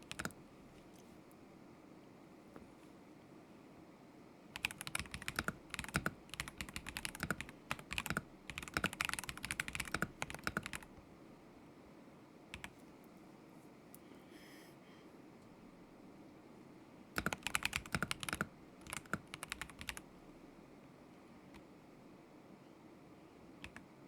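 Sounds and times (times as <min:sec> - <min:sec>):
mechanical keyboard typing: 0:00.0 - 0:00.4, 0:04.6 - 0:10.9, 0:17.2 - 0:20.1, 0:23.6 - 0:23.8.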